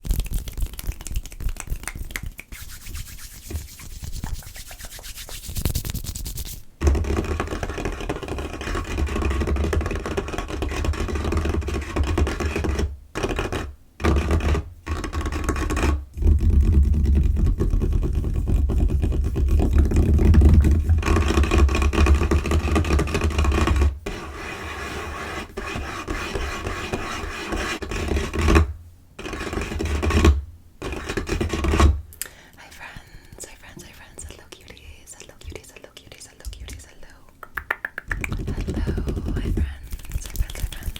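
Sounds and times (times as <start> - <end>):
tapping and scratching on a table: 2.6 - 32.0, 37.5 - 40.9.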